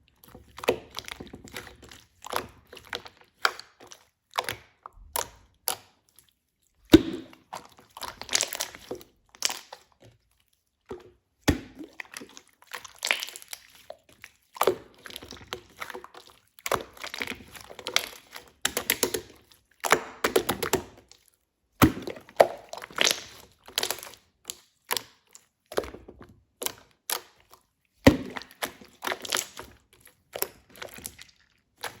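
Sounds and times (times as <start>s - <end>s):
crinkling and crunching: 6.9s - 10.5s, 20.8s - 32.0s.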